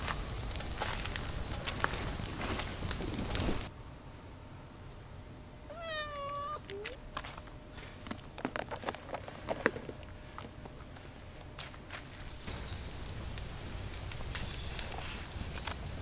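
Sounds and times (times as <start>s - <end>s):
rustling: 0.0s - 3.7s
cat chirp: 5.7s - 6.8s
cat meowing: 5.7s - 6.8s.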